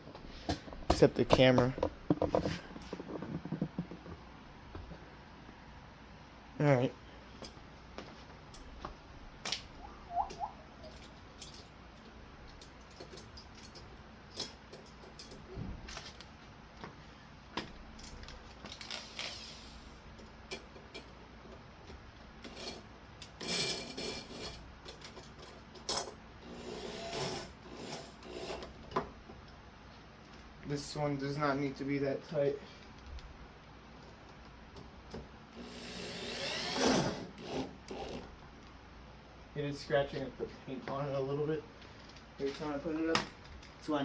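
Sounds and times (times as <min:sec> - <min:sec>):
metal hardware clicking and clinking: 0:10.3 - 0:11.8, 0:12.5 - 0:15.5.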